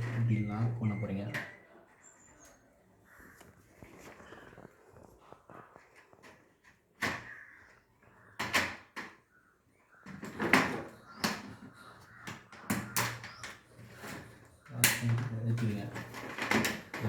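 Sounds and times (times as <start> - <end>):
plastic parts knocking and clicking: 8.4 - 9.3, 10.0 - 17.0.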